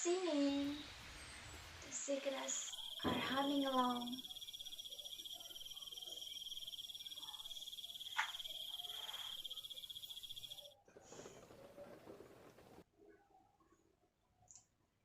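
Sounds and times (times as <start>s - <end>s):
night insects trilling: 1.9s - 10.7s.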